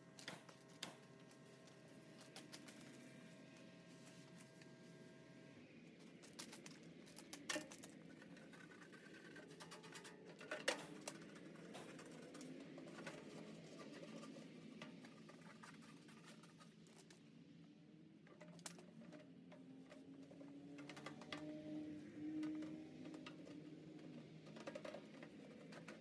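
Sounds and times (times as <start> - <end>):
faint scratching and tapping: 6.0 - 17.3, 18.2 - 26.0.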